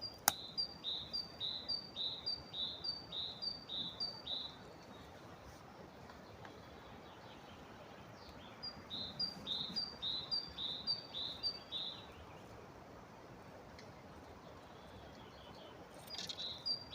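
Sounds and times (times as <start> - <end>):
background hiss: 0.0 - 16.9.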